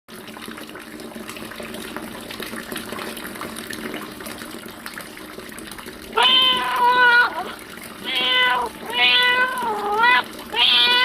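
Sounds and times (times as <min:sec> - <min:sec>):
fountain water splashing: 0:04.9 - 0:11.0.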